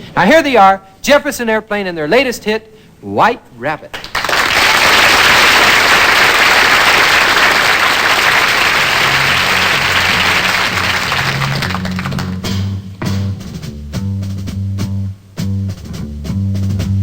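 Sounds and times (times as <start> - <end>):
audience applauding: 4.0 - 12.5
bass guitar line: 8.8 - 17.0.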